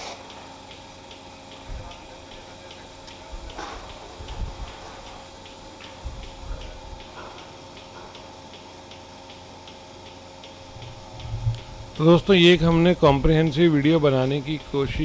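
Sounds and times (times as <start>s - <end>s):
mechanical ticking: 0.6s - 15.0s
low steady hum: 10.4s - 15.0s
dull low thumps: 10.6s - 12.3s.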